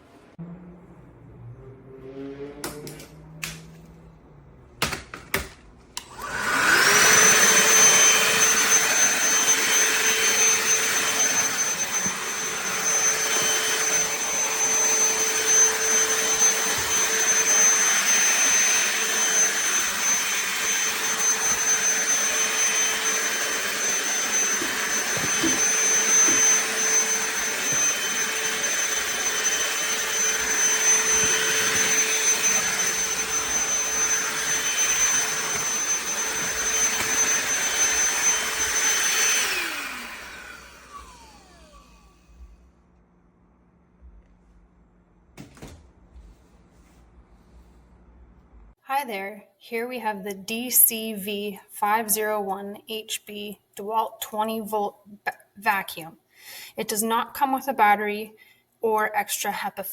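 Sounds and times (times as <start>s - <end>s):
handheld vacuum motor whining: 6.0s - 42.6s.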